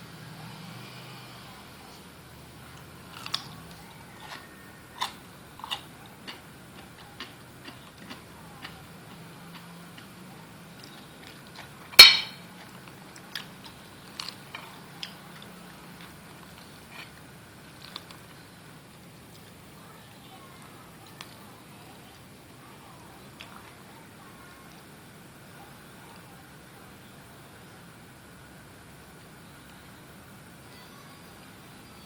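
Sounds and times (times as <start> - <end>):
low steady hum: 0.0 - 32.0
kitchen utensils and dishes clicking: 12.0 - 12.4
sharp ringing clink: 12.0 - 12.4.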